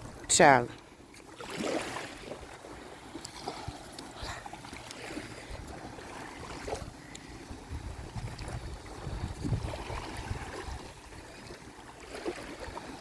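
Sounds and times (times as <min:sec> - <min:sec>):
wind rumbling on microphone: 0:03.5 - 0:13.0.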